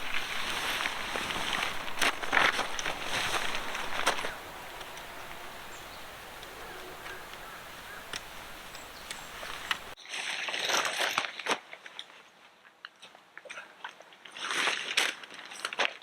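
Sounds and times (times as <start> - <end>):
crackling rustling crunches: 0.0 - 10.0
faint clicks: 0.0 - 10.0
outdoor noise: 0.0 - 12.2.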